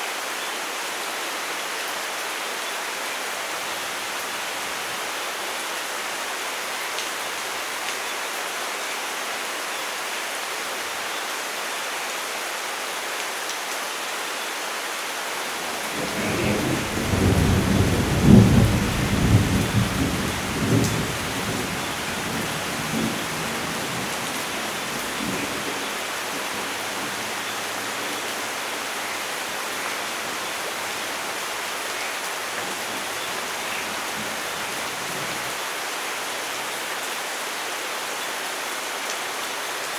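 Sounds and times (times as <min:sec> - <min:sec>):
steady rainfall: 0:00.0 - 0:39.9
thunder rumbling: 0:15.6 - 0:31.0.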